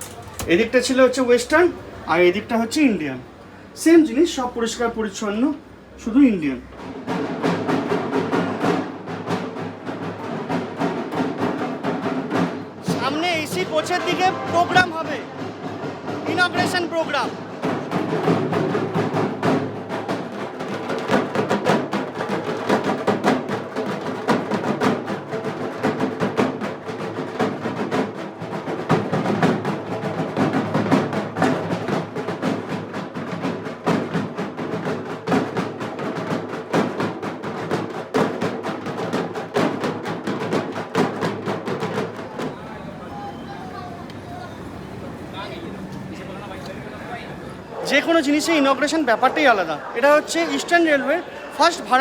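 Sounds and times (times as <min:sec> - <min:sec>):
fast dense drumming music: 0:06.3 - 0:42.7.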